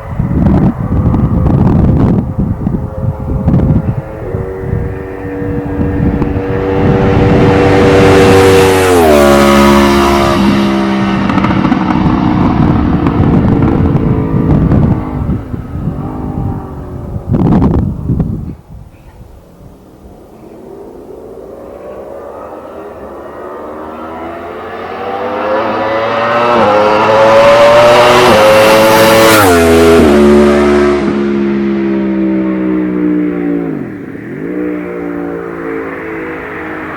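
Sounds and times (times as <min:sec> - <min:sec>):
motorcycle passing by: 0:00.0 - 0:18.4, 0:20.5 - 0:36.9.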